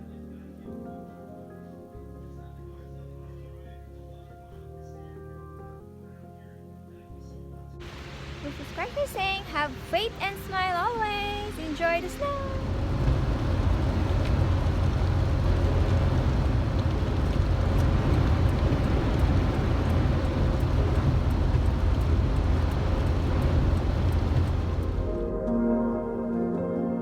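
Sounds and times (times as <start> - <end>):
heavy low rumble: 11.2 - 25.4.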